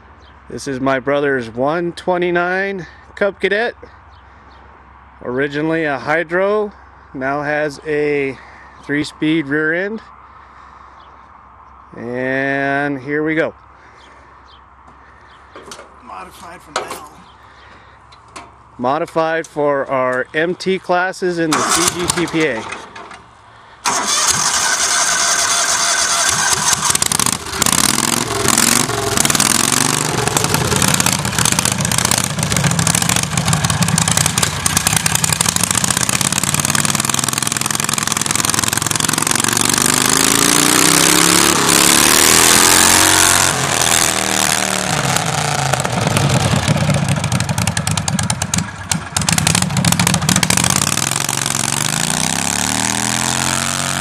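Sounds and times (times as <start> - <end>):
tractor engine revving loud: 21.5 - 22.6, 23.8 - 54.0.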